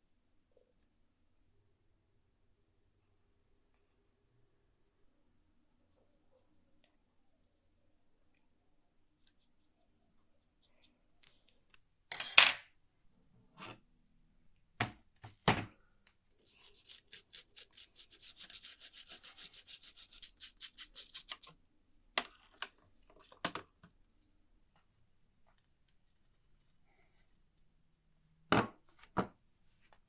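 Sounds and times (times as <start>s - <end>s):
hand scrubbing a part: 16.3s - 21.5s.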